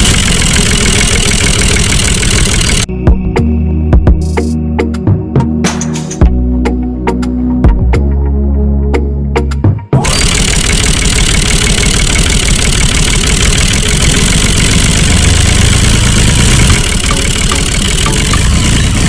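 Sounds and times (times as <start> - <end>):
engine running: 0.0 - 2.9, 10.0 - 19.0
music: 2.9 - 10.2, 16.6 - 19.0.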